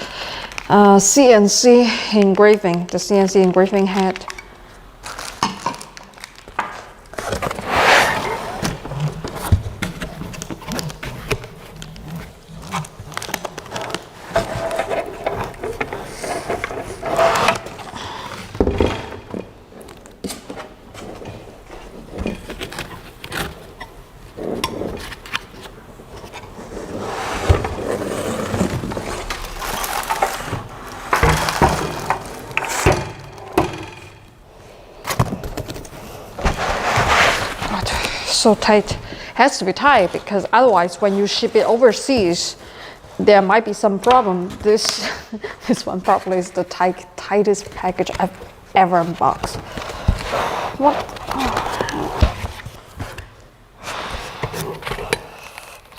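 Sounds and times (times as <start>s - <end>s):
packaging rustling and scraping: 1.7s - 18.7s, 19.3s - 33.6s, 35.0s - 42.4s, 44.6s - 55.9s.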